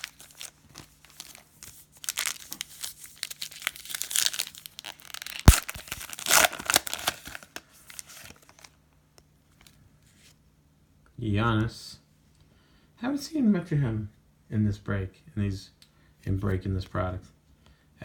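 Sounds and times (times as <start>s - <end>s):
card pack wrapper crinkling: 0.0s - 8.8s
wrapper sharp snap: 3.9s - 7.6s.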